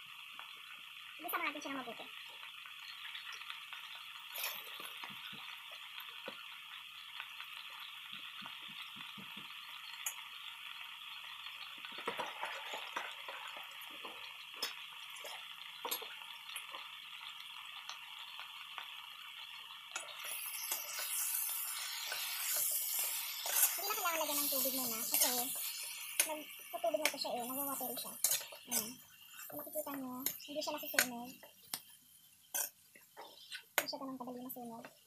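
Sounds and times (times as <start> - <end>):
leaves sizzling in a wok: 0.0 - 34.8.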